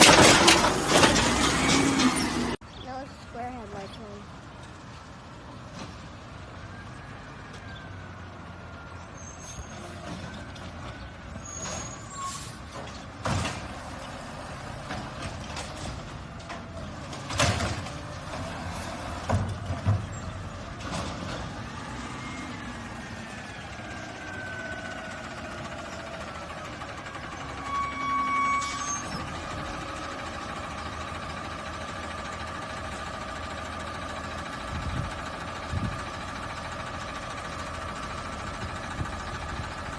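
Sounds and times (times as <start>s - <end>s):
sharp metal clanks and knocks: 0.0s - 2.4s
garbage truck engine whining: 0.0s - 2.6s, 6.1s - 39.9s.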